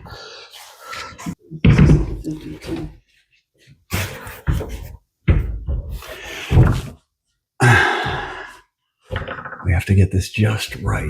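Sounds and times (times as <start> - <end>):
closet door knocking and clattering: 1.6 - 2.9, 4.4 - 7.0.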